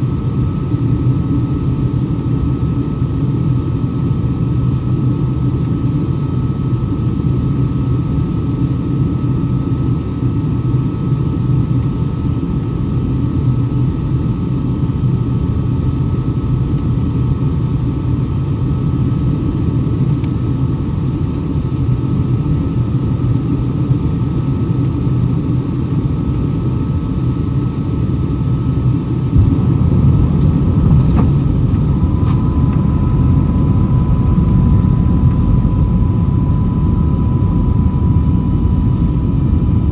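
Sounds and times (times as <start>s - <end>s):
aircraft cabin engine rumble: 0.0s - 39.9s
steady whining tones: 27.5s - 39.9s.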